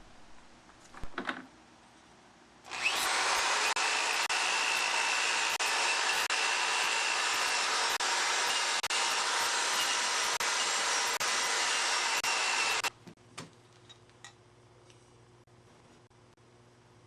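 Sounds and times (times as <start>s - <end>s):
grinder stripping rust off steel: 2.7s - 12.9s.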